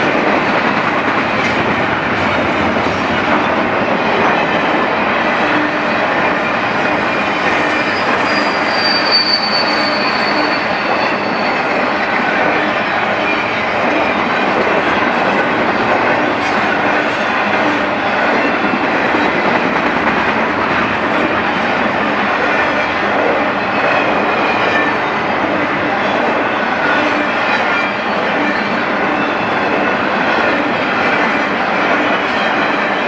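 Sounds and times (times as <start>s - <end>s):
freight train wheels on rail: 0.0s - 33.0s
high thin wheel squeal: 7.2s - 11.9s.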